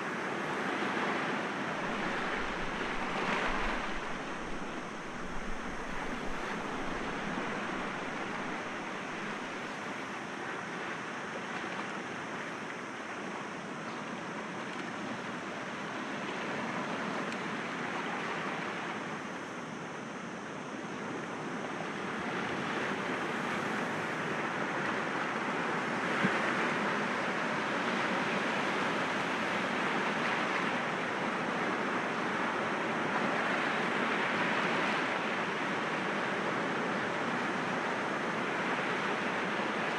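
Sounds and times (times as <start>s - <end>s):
sea waves washing against rocks: 0.9s - 9.8s.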